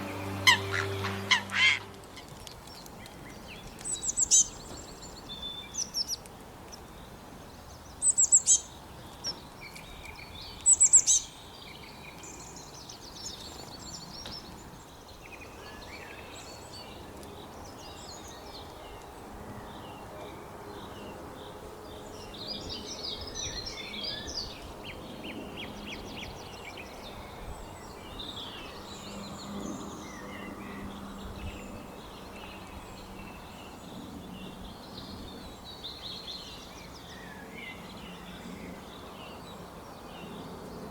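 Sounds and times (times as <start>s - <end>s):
birds chirping and trilling: 0.0s - 6.2s
outdoor background hiss: 0.0s - 9.6s.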